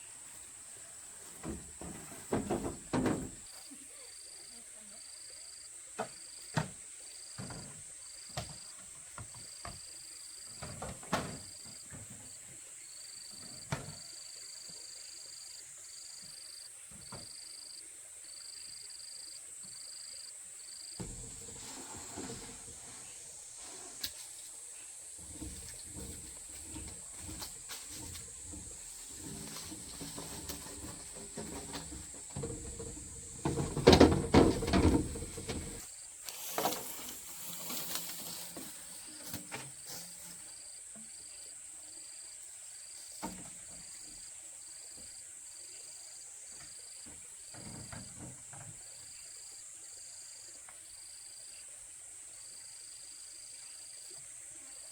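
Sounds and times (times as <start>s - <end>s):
knocks and clatter: 1.4s - 3.5s, 21.0s - 23.3s, 25.2s - 35.9s
cricket chirping: 3.0s - 54.9s.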